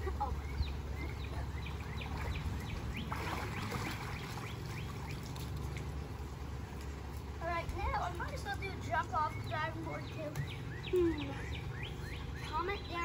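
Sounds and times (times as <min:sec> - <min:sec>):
water splashing and streaming: 0:00.0 - 0:09.2
low background rumble: 0:00.0 - 0:13.0
bird chirping: 0:00.2 - 0:05.4, 0:09.1 - 0:13.0.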